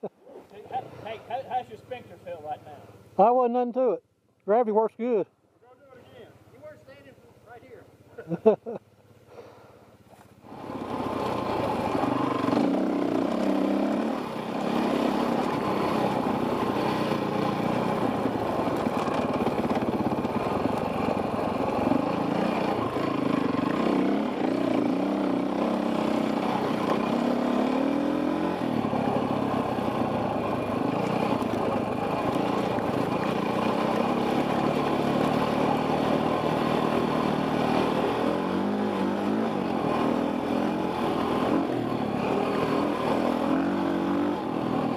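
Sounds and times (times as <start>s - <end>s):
dirt bike engine revving: 10.4s - 44.9s.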